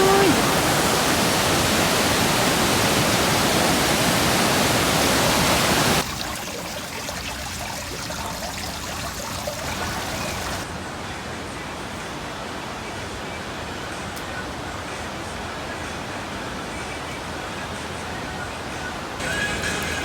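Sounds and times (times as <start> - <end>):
rushing water: 0.0 - 10.7.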